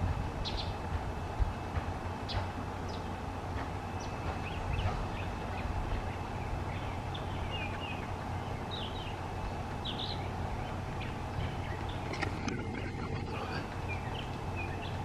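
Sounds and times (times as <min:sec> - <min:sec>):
steady low hum: 0:00.0 - 0:15.0
bird chirps: 0:00.4 - 0:00.8, 0:03.8 - 0:15.0.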